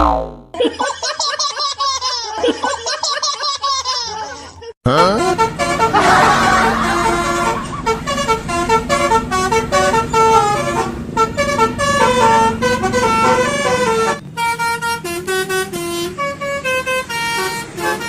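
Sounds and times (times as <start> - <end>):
bus horn playing a melody: 4.9 - 18.0.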